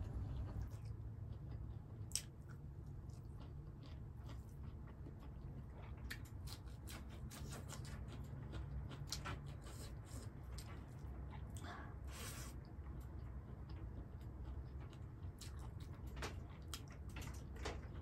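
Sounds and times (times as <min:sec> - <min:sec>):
low hum: 0:00.0 - 0:06.0
close chewing of food: 0:00.3 - 0:18.0.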